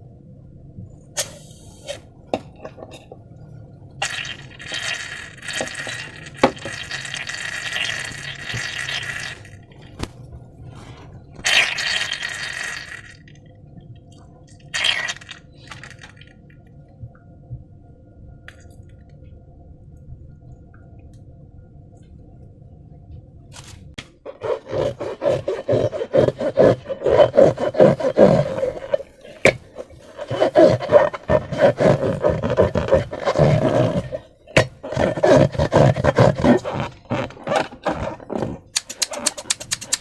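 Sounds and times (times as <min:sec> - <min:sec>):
slime squishing: 0:24.3 - 0:40.0.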